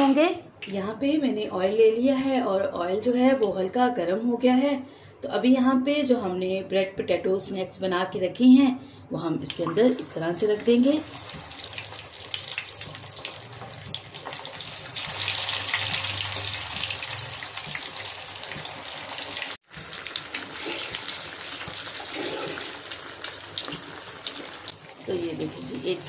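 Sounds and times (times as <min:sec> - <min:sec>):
cutlets sizzling in hot oil: 0:10.6 - 0:26.0.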